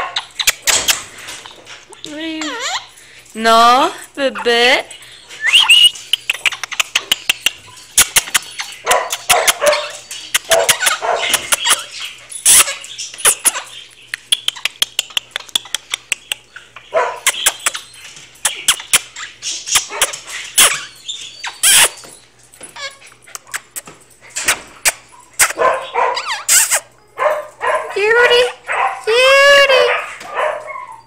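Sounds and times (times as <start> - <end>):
pet bird squawking and chirping: 0.2 - 3.0, 5.4 - 22.1, 24.4 - 26.9.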